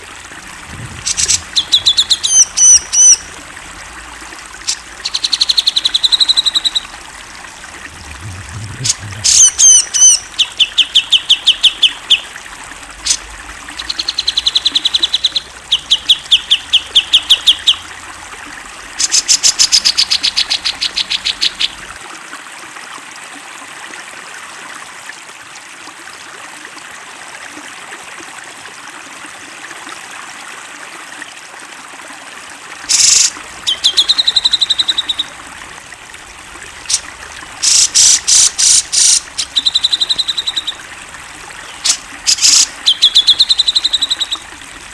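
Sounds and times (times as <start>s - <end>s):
bulbul singing: 0.0s - 12.4s, 13.0s - 18.0s, 32.9s - 44.9s.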